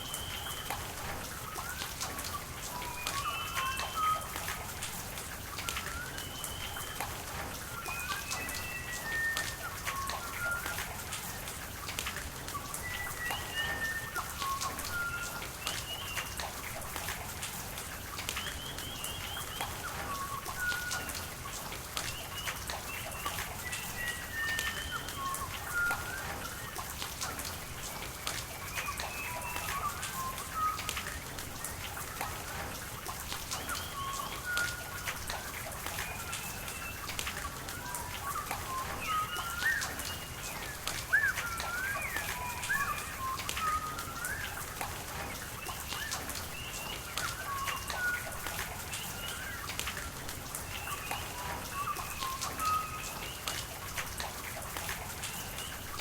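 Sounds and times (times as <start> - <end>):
birds chirping and whistling: 0.0 - 4.8, 5.5 - 11.5, 12.5 - 17.4, 18.3 - 32.5, 33.4 - 55.9
rain pattering: 0.0 - 56.0.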